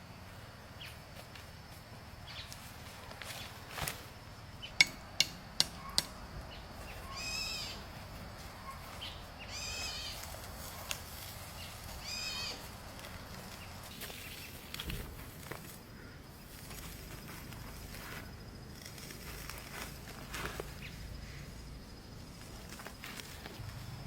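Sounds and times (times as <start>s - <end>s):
sharp knocks: 4.8s - 6.2s
high nasal animal call: 6.9s - 7.9s, 8.6s - 10.9s, 11.6s - 12.7s.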